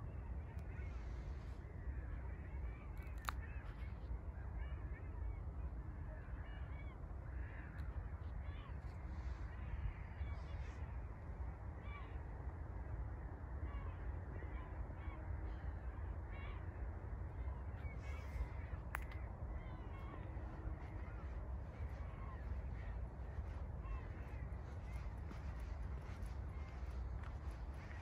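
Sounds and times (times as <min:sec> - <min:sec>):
low steady rumble: 0:06.0 - 0:28.0
birds calling: 0:13.6 - 0:28.0.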